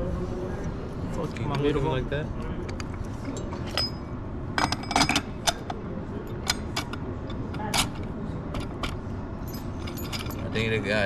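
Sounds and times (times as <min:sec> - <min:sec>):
low shop hum: 0:00.0 - 0:11.0
metal parts clinking: 0:02.6 - 0:10.8.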